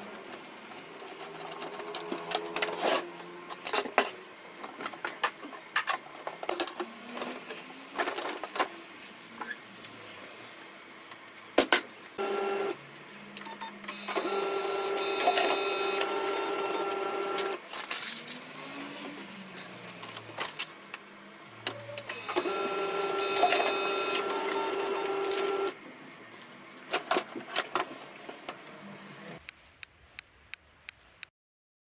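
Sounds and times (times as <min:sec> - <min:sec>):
printer motor hum: 0:12.2 - 0:12.8, 0:13.9 - 0:17.6, 0:21.9 - 0:25.8
printer clicks: 0:14.0 - 0:17.6, 0:22.1 - 0:25.7.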